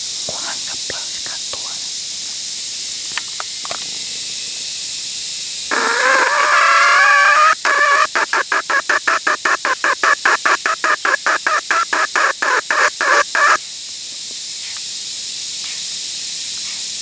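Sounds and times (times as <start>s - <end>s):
chicken squawking and clucking: 5.7s - 13.6s.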